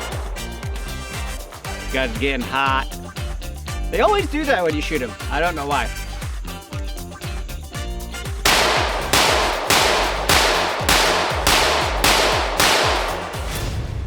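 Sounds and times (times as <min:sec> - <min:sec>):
pistol shots: 0:00.0 - 0:01.8, 0:08.5 - 0:13.7
background music with a beat: 0:00.0 - 0:13.8.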